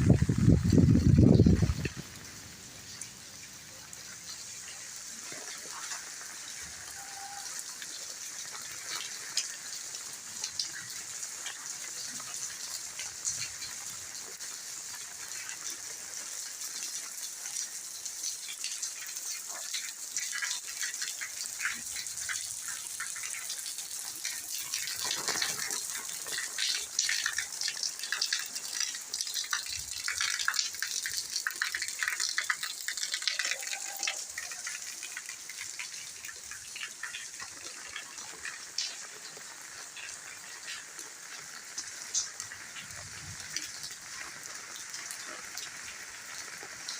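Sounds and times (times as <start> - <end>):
rain falling: 0.0 - 46.9
raindrops hitting hard surfaces: 0.0 - 46.9.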